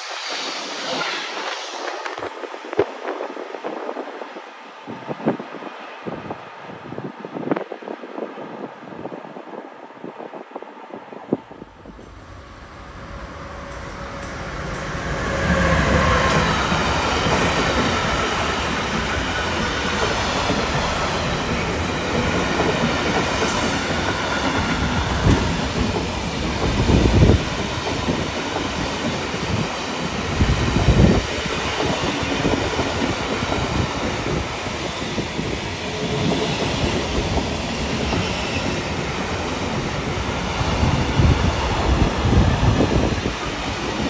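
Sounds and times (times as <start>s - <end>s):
freight train wheels rumbling: 10.2s - 44.0s.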